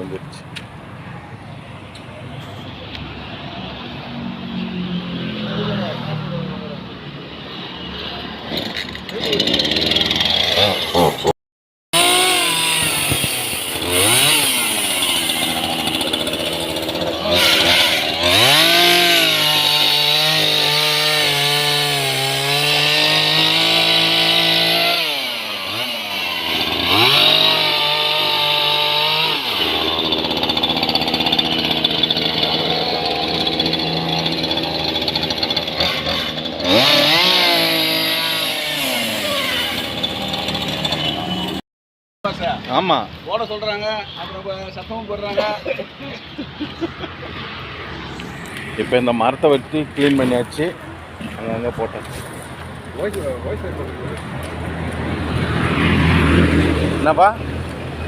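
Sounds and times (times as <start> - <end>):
chainsaw cutting through a trunk: 8.5 - 11.3, 12.0 - 41.6.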